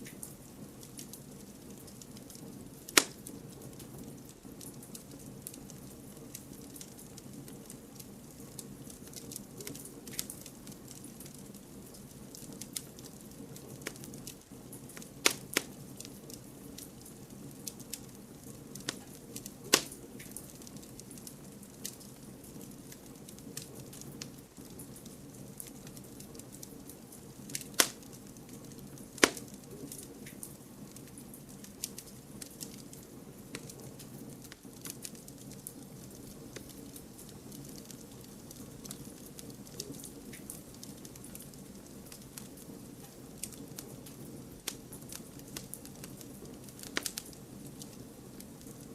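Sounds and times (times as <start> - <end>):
low rumble of flame: 0.0 - 48.9
wood crackling in campfire: 0.0 - 48.9
loud sharp pops: 3.0 - 3.2, 15.2 - 15.7, 19.7 - 20.0, 27.8 - 28.0, 29.2 - 29.4.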